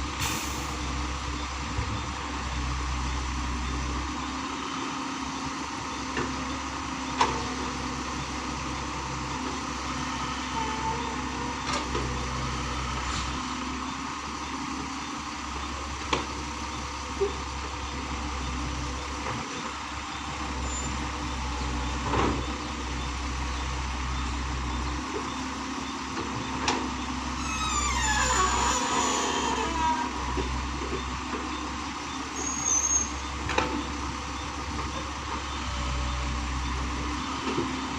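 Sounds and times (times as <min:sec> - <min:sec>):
heavy diesel machinery running: 0:00.0 - 0:37.9
falling squeal: 0:27.4 - 0:30.2, 0:32.4 - 0:33.3.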